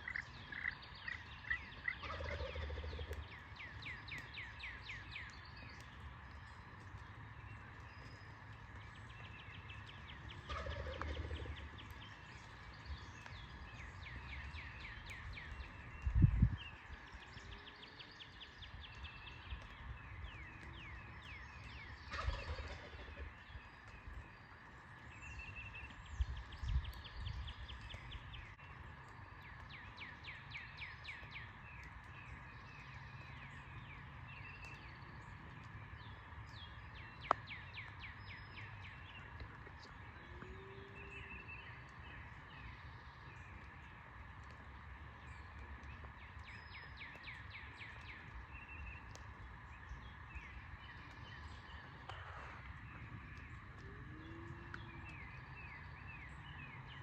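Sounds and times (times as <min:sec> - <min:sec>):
songbirds trilling: 0:00.0 - 0:57.0
turkey gobbling: 0:01.8 - 0:03.1, 0:10.5 - 0:11.6, 0:22.1 - 0:23.2.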